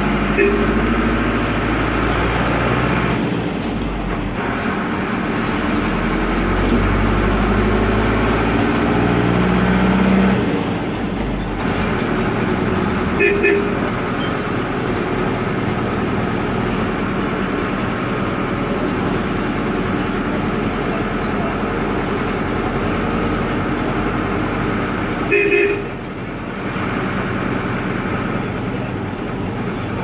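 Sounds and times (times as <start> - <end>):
diesel engine running: 0.0 - 30.0
horn toot: 0.3 - 0.8, 13.2 - 13.8, 25.3 - 25.9.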